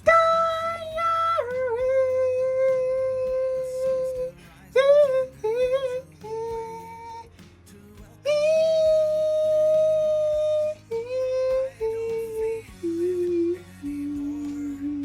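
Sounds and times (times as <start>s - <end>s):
sung or hummed melody: 0.0s - 15.0s.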